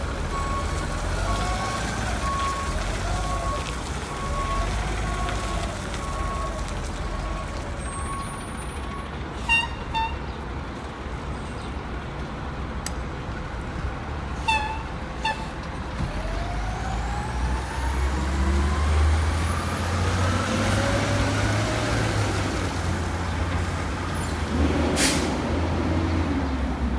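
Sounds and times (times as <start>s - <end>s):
diesel truck engine revving: 0.0s - 10.1s, 15.1s - 26.9s
air brake hiss: 25.0s - 25.4s.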